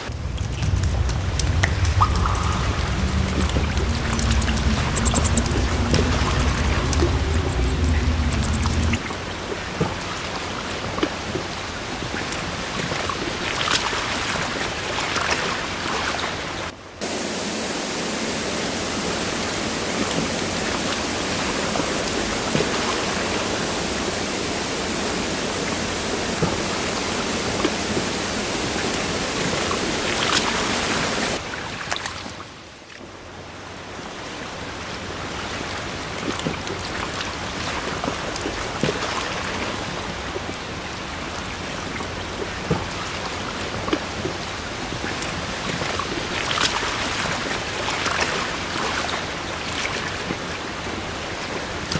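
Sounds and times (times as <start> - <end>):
flowing water rushing: 0.0 - 32.3.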